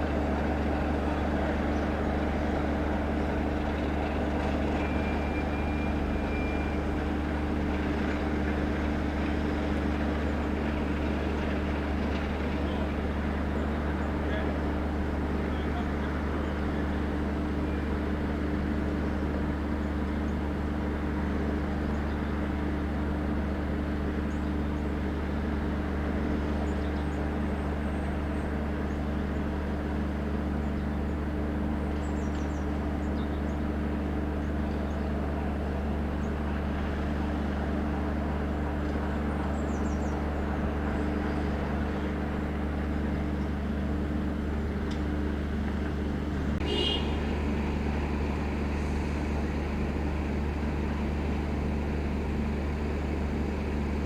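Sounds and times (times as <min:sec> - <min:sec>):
diesel locomotive engine idling: 0:00.0 - 0:54.0.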